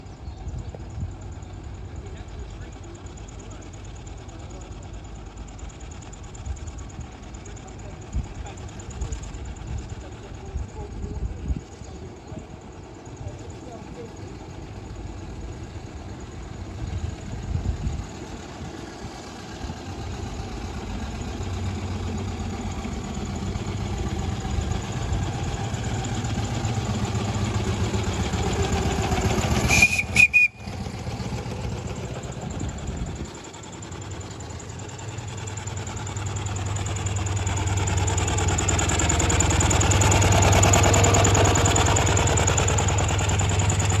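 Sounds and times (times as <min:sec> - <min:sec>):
steam traction engines running: 0:00.0 - 0:44.0
steam whistle toot: 0:29.6 - 0:30.9.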